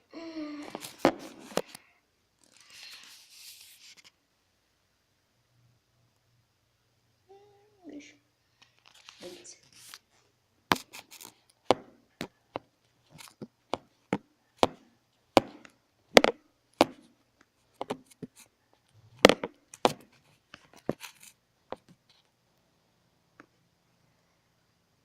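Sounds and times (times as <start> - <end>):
hard objects knocking on surface: 11.7 - 12.7, 13.8 - 14.8, 15.4 - 17.1, 19.2 - 20.0.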